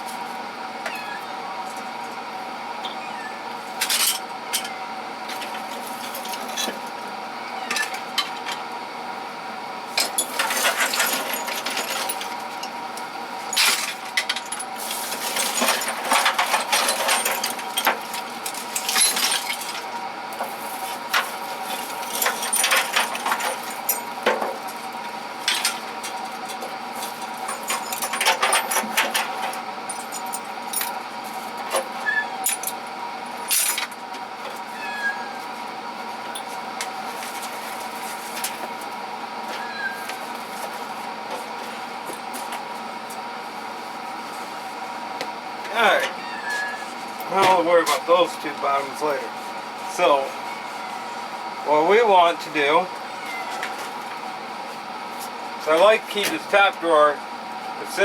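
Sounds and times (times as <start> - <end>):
metal tools clinking and rattling: 10.0 - 12.7, 13.5 - 18.0, 18.7 - 19.8, 21.7 - 24.1, 27.4 - 31.0.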